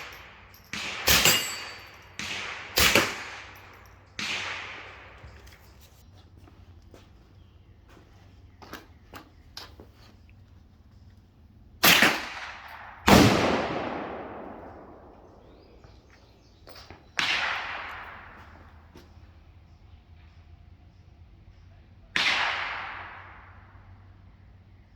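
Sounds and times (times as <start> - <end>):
suppressed rifle shots with echo: 0.0 - 5.2, 11.8 - 15.8, 17.2 - 18.8, 22.2 - 24.0.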